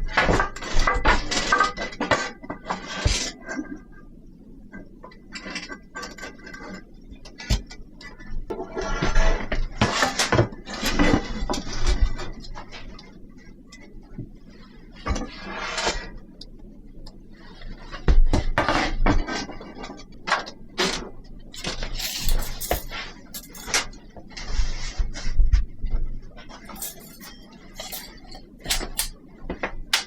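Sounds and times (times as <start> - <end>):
dishes and cutlery clinking: 21.6 - 24.0, 26.6 - 29.2.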